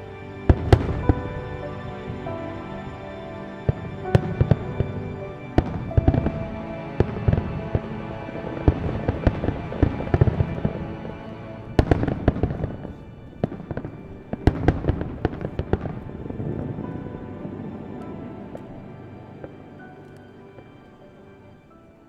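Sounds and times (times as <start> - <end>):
music: 0.0 - 22.0.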